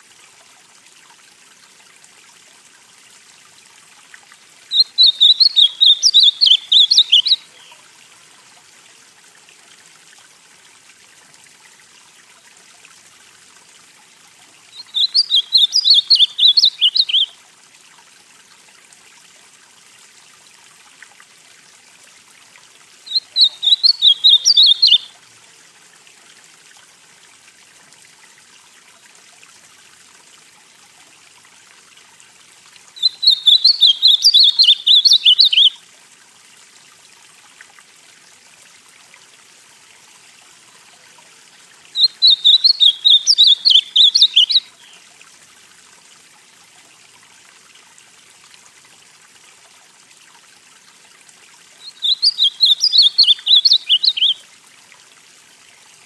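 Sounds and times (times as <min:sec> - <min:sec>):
faint steady hiss: 0:00.0 - 0:56.0
bird singing warbled phrases: 0:04.7 - 0:07.8, 0:14.7 - 0:17.4, 0:23.1 - 0:25.1, 0:33.0 - 0:35.8, 0:42.0 - 0:45.0, 0:51.8 - 0:54.4.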